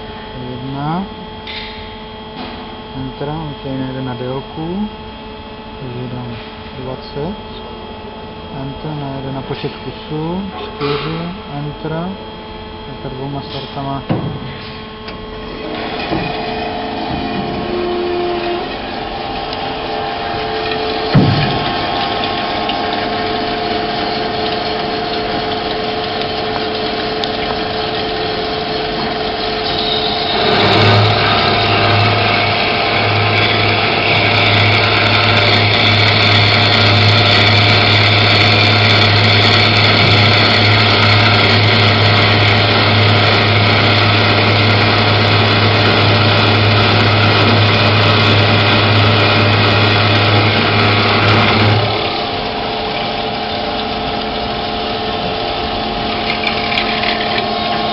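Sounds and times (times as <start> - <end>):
machinery humming: 0.0 - 57.9
band saw cutting with drone and hiss: 15.6 - 23.2, 29.5 - 52.3.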